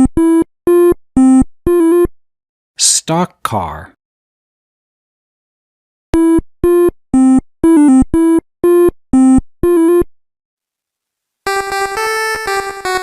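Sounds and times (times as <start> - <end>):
bouncy synthesizer melody: 11.5 - 13.0.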